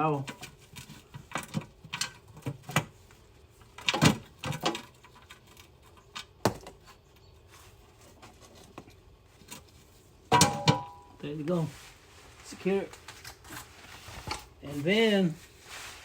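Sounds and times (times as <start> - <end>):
tools knocking and clacking: 10.3 - 11.1.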